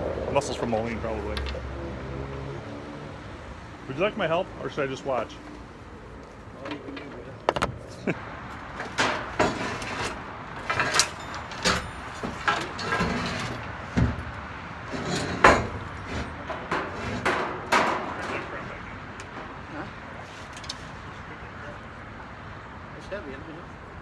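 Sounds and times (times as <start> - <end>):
scrap metal clanking and scraping: 6.6 - 21.3.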